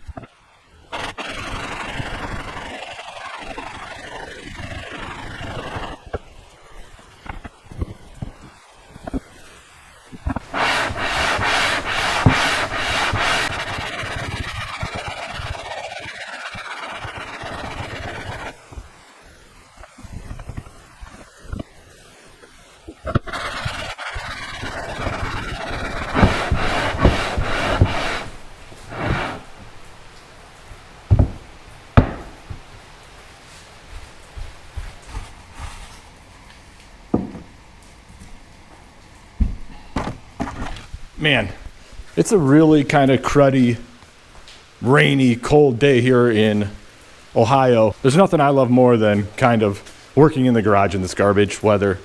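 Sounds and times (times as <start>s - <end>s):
harsh metal scraping: 10.3s - 18.5s, 23.2s - 30.0s
metal rasping on abrasive surface: 10.4s - 18.5s, 23.1s - 29.9s.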